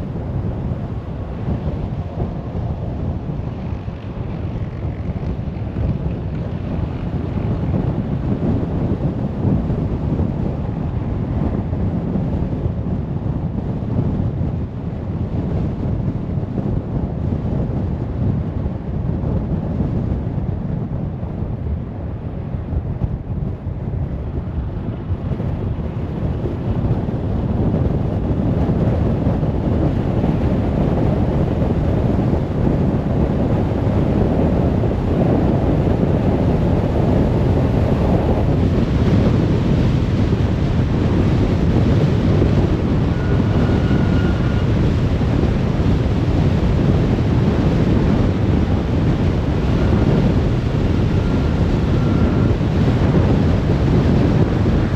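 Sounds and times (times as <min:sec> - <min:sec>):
car tyre and road noise: 0:00.0 - 0:54.9.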